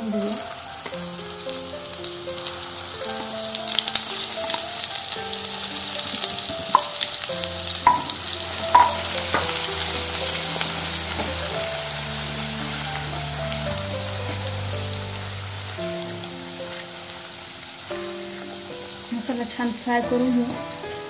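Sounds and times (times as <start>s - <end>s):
paste sizzling in hot oil: 0.0s - 21.0s
soft background music: 0.0s - 21.0s
wooden spatula stirring: 2.4s - 14.6s.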